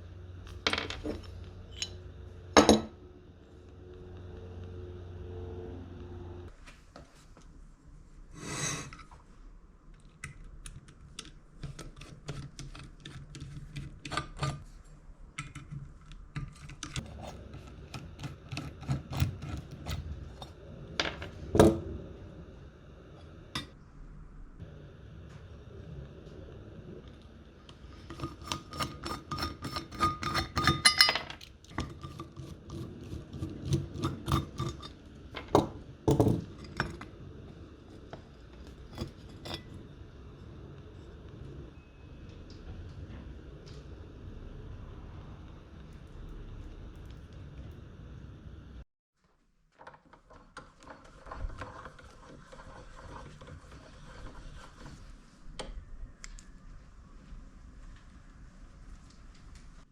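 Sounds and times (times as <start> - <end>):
metal parts and tools clinking: 0.5 - 2.0, 28.8 - 32.0.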